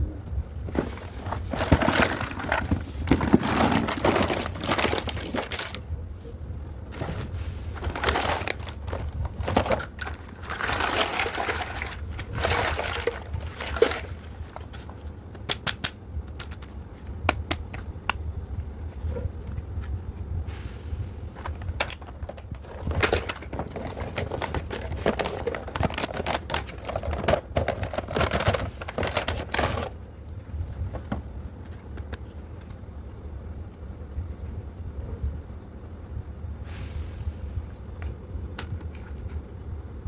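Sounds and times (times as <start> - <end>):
packaging crinkling and rustling: 0.6 - 6.0, 6.9 - 16.8, 21.3 - 30.0.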